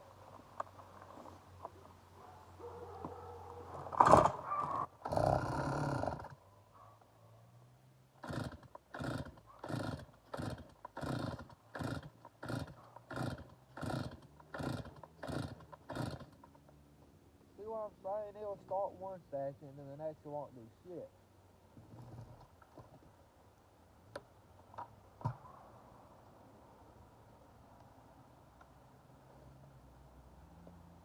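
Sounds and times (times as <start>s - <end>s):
chainsaw recoil starter pulls: 3.8s - 5.6s, 8.2s - 16.6s.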